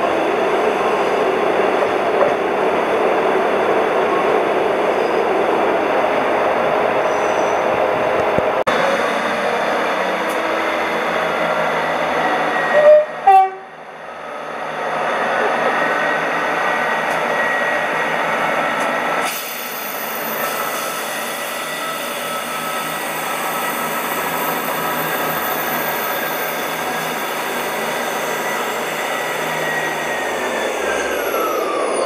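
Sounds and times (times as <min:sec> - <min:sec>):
train rumbling: 0:00.0 - 0:32.0.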